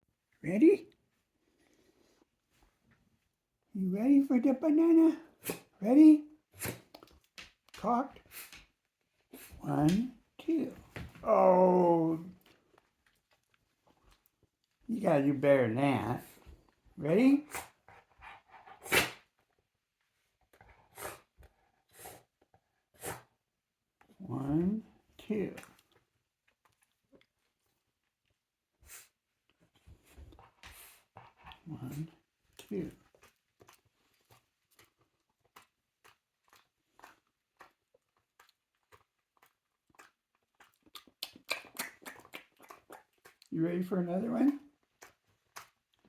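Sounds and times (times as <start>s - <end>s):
dog chewing with wet smacks: 29.5s - 46.0s.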